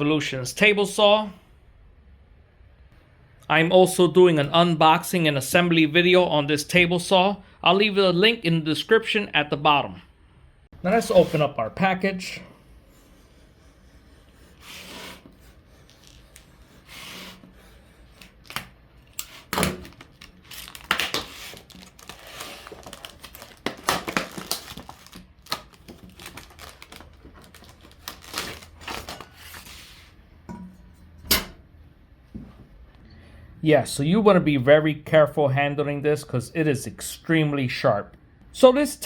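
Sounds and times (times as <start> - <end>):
packaging tearing and crinkling: 18.2 - 29.8.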